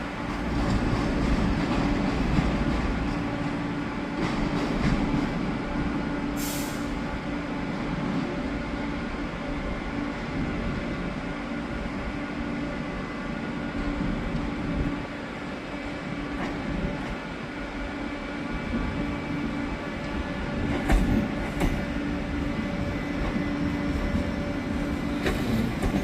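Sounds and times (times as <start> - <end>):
train rumbling: 0.0 - 26.0
brief hiss: 6.4 - 7.0.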